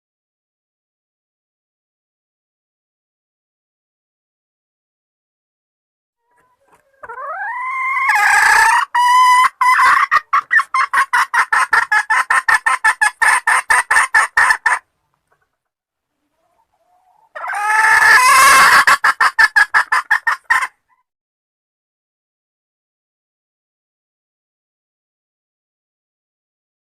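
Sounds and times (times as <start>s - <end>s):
junglefowl hen calling: 6.2s - 15.4s, 16.2s - 21.1s.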